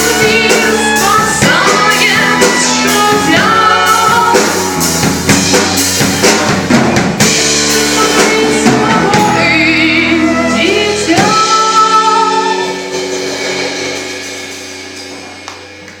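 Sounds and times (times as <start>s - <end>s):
person singing: 0.0s - 4.8s, 7.7s - 14.0s
drum hits: 0.0s - 9.4s
live band playing: 0.0s - 16.0s.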